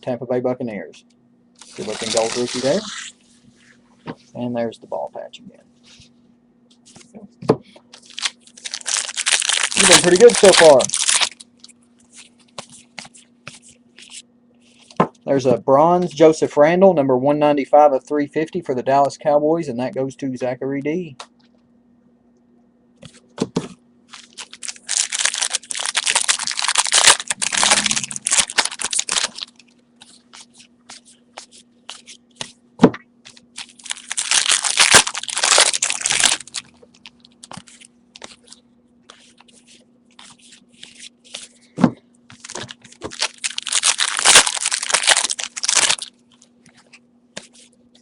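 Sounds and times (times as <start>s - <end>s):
card pack wrappers crinkling: 1.6s - 3.1s, 7.9s - 14.2s, 24.1s - 31.0s, 33.3s - 41.5s, 42.3s - 46.4s.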